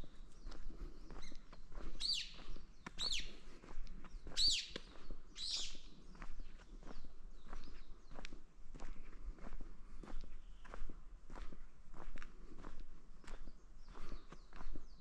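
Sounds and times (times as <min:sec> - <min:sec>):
footsteps crunching on forest path: 0:00.0 - 0:15.0
bird calling: 0:02.0 - 0:02.4, 0:03.0 - 0:03.4, 0:04.3 - 0:05.9.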